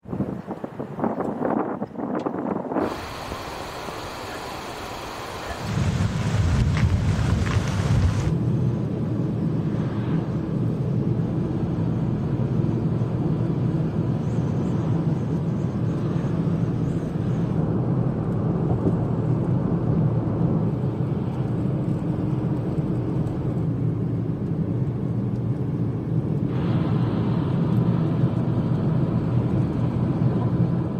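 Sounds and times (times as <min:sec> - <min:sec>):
vehicle road noise rumble: 0:00.0 - 0:30.9
hiss: 0:02.8 - 0:08.3, 0:26.5 - 0:29.9.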